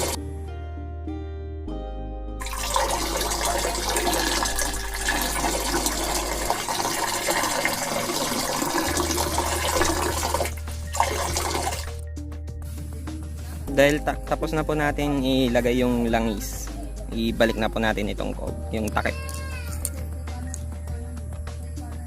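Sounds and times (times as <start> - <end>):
background music: 0.0 - 22.0
oil glugging from bottle: 2.4 - 12.0.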